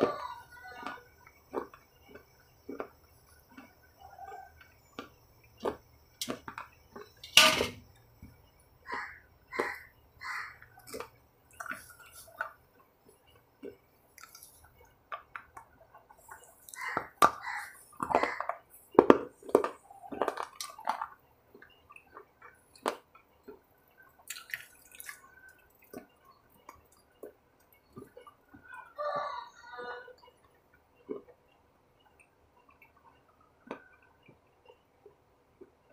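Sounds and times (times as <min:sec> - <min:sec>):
wet chewing and lip smacks: 0:00.8 - 0:05.9, 0:10.7 - 0:18.2, 0:19.4 - 0:28.8.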